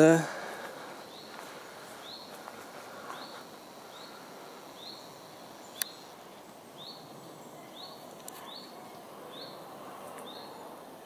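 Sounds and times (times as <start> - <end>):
bird high chirp: 6.8 - 9.6.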